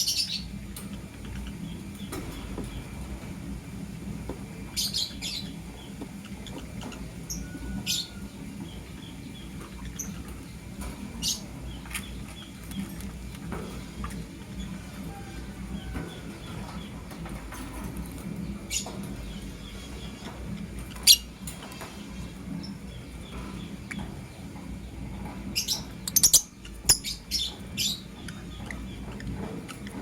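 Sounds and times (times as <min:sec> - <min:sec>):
steady low hum: 0:00.0 - 0:30.0
lovebirds chirping: 0:04.6 - 0:21.4, 0:22.2 - 0:30.0.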